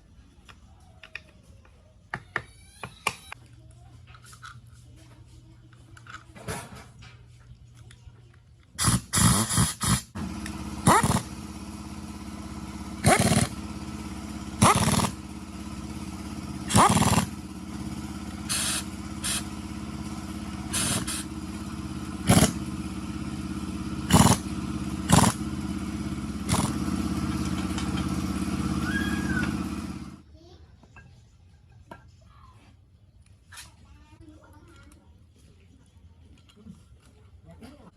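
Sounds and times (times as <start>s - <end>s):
engine running with low pulse: 6.8s - 30.2s
short loud engine bursts: 8.8s - 30.2s.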